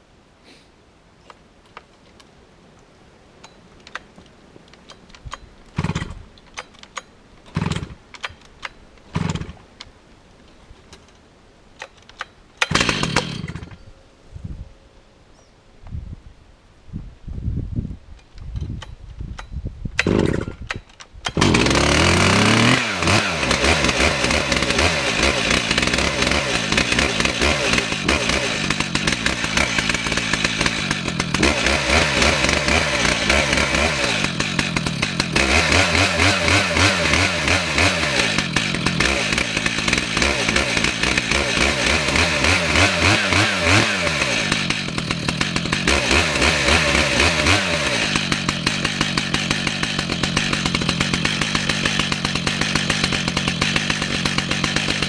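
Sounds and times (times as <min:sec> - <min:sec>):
chainsaw cutting through log: 0:05.8 - 0:06.2, 0:07.5 - 0:08.0, 0:09.1 - 0:09.6, 0:12.6 - 0:13.8, 0:20.0 - 0:20.7, 0:21.3 - 0:55.0.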